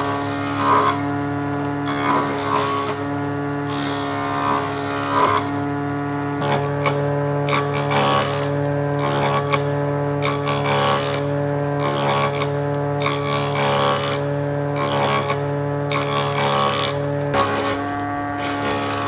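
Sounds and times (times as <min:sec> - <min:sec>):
cutter rasping against wood: 0:00.0 - 0:05.8, 0:06.4 - 0:19.0
power tool motor humming: 0:00.0 - 0:19.0.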